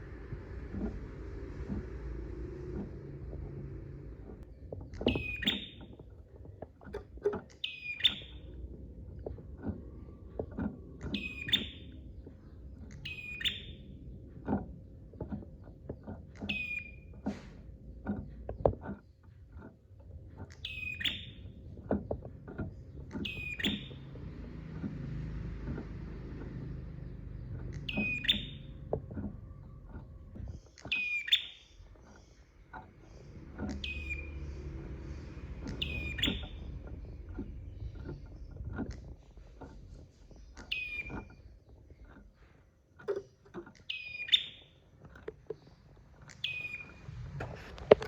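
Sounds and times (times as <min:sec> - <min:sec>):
low knocks and clicks: 0:00.0 - 0:48.0
bird calling: 0:05.0 - 0:05.9, 0:07.5 - 0:08.6, 0:11.0 - 0:12.0, 0:12.9 - 0:13.9, 0:20.6 - 0:21.5, 0:23.1 - 0:24.1, 0:26.6 - 0:32.4, 0:33.0 - 0:38.9, 0:40.3 - 0:42.0, 0:43.8 - 0:44.8, 0:46.2 - 0:47.1.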